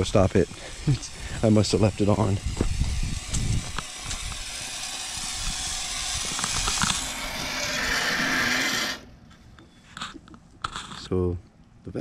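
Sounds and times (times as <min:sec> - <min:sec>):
garden hose water spraying: 0:00.0 - 0:09.0.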